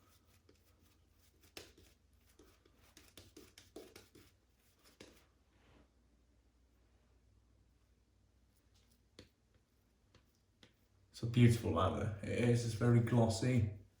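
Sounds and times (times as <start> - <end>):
shaving brush soft strokes: 0.0 - 5.4.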